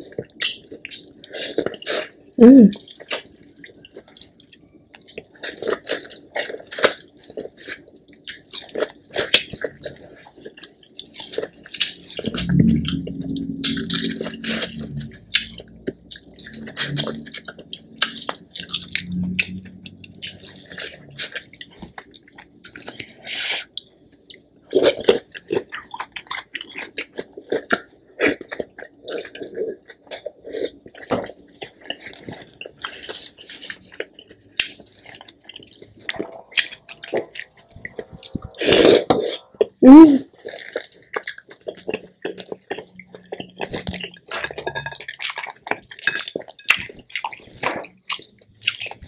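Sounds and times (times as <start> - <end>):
wet chewing: 2.8 - 49.0.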